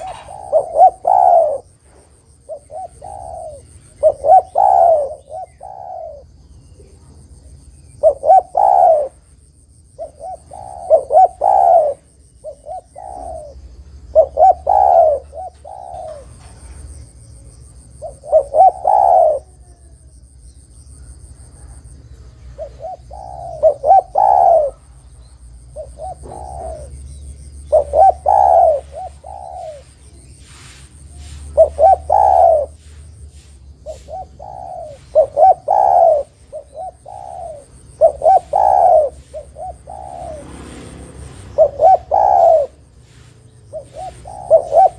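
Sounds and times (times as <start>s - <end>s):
dove cooing: 0.0s - 20.3s, 20.9s - 44.9s.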